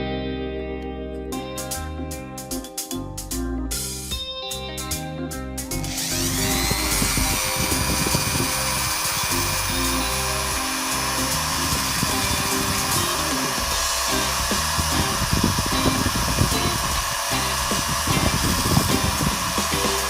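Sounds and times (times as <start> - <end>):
background music: 0.0 - 20.0
electric drill whining: 5.7 - 20.0.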